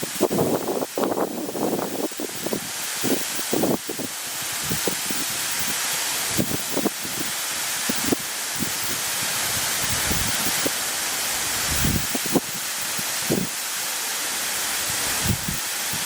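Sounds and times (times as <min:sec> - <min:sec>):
wind thumping on microphone: 0:00.0 - 0:05.7, 0:06.3 - 0:10.8, 0:11.6 - 0:12.6, 0:13.2 - 0:13.6, 0:14.9 - 0:16.0
waterfall rushing hiss: 0:00.0 - 0:16.0.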